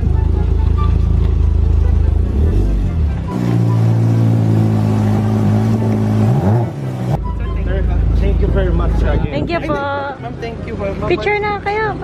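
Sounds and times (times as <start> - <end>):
car engine running: 0.0 - 9.5.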